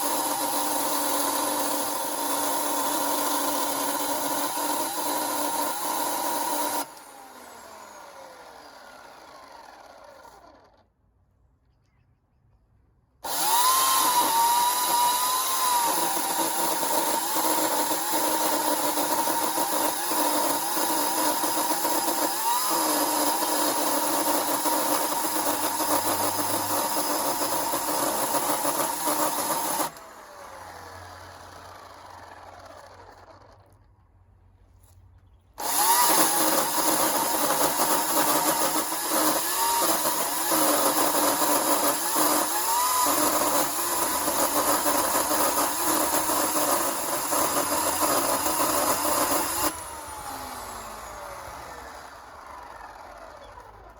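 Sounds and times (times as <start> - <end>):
electric chainsaw cutting wood: 0.0 - 10.9, 13.2 - 33.9, 35.6 - 53.9.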